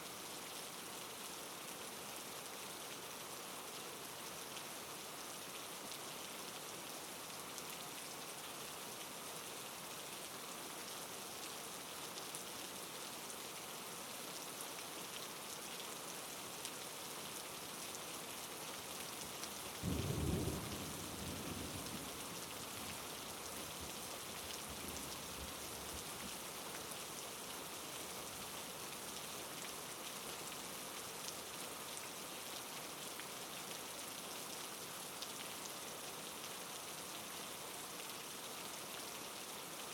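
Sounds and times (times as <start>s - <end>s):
steady rain falling: 0.0s - 39.9s
low rumble of thunder: 19.8s - 22.4s.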